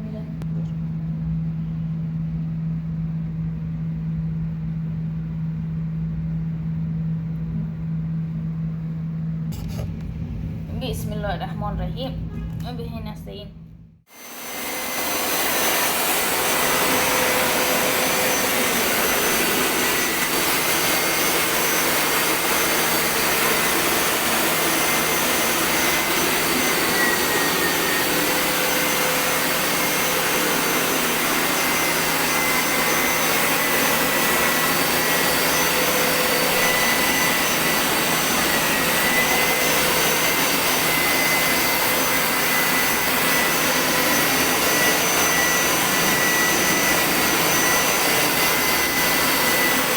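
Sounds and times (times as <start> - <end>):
suction motor whining: 14.1 - 49.9.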